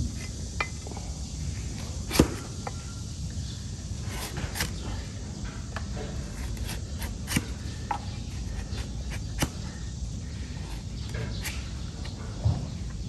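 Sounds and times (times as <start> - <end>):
low background noise: 0.0 - 13.0
tools scraping hoof: 4.0 - 12.2.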